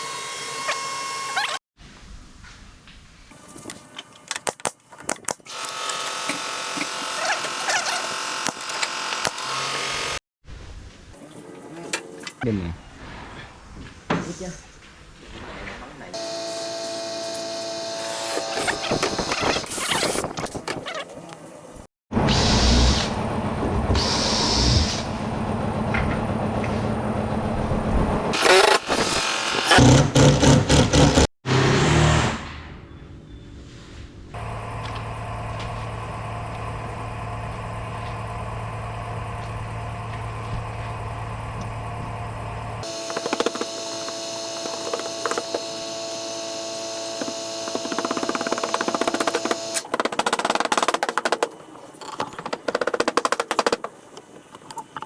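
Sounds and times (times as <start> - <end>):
workshop machine hum: 3.3 - 10.2, 16.1 - 21.9, 22.5 - 30.0, 34.4 - 55.0
power tool whining: 5.4 - 10.2, 16.2 - 20.8, 28.3 - 31.3, 42.8 - 54.8
sharp clicks and knocks: 42.8 - 45.8, 47.1 - 55.0.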